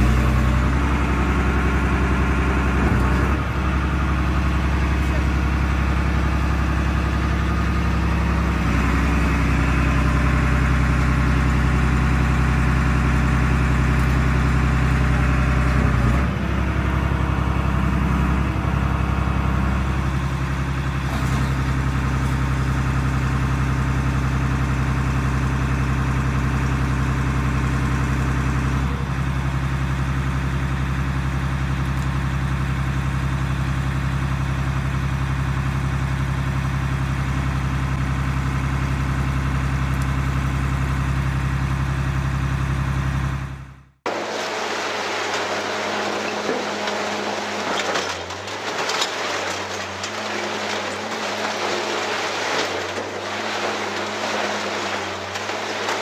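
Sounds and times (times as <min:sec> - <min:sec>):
machine engine running: 0:00.0 - 0:24.3, 0:41.8 - 0:56.0.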